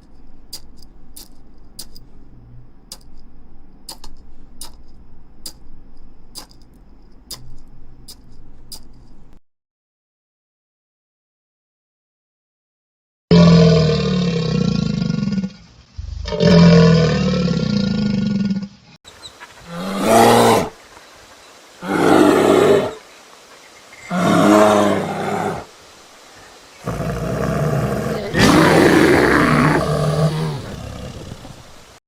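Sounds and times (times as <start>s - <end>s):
big cat roaring: 13.3s - 18.8s, 19.6s - 20.8s, 21.8s - 23.0s, 24.1s - 25.7s, 26.8s - 32.0s
animal call: 13.3s - 20.8s, 21.8s - 23.1s, 23.8s - 25.7s, 26.4s - 32.0s.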